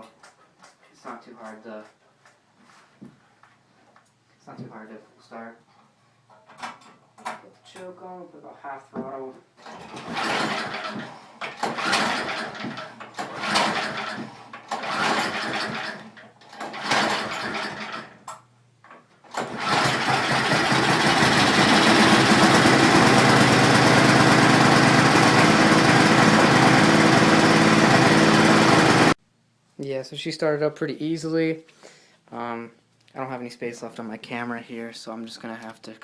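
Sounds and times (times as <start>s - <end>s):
small engine turning over: 9.7s - 18.1s, 19.3s - 29.2s
small engine running: 9.9s - 18.1s, 19.4s - 29.2s.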